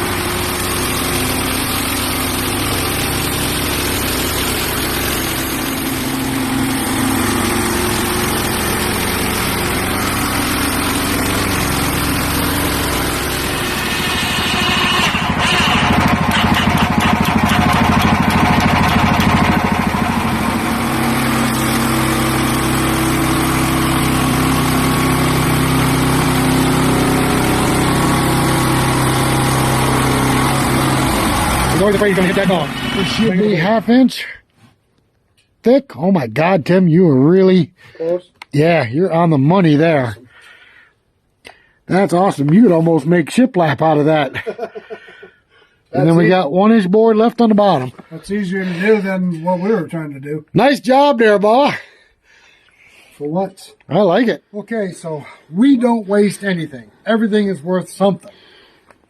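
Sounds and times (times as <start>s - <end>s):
band blade cutting log: 0.0s - 33.7s
sawmill engine running: 0.0s - 34.2s.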